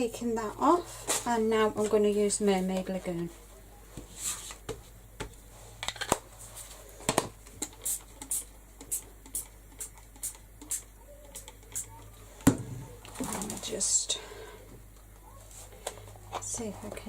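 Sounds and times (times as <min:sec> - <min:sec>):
sharp hissy ticks: 0:07.6 - 0:12.0.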